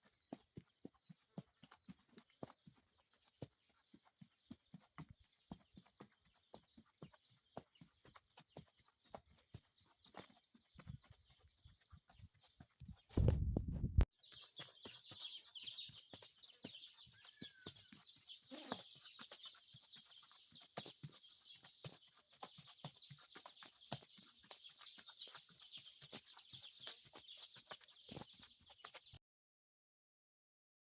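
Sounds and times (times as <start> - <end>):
horse hooves walking: 0.0 - 29.2
low rumble on microphone: 12.8 - 14.1.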